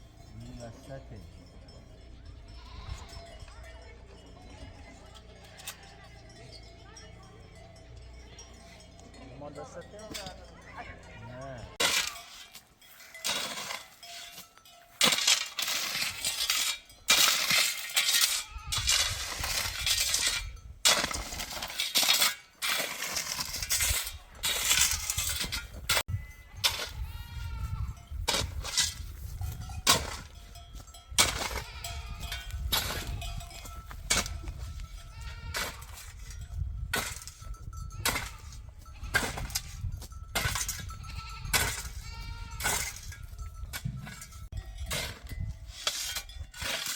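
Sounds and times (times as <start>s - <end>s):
sheep and goats bleating: 2.2s - 14.6s, 17.4s - 20.6s, 26.1s - 28.2s, 30.6s - 36.4s, 37.7s - 43.5s.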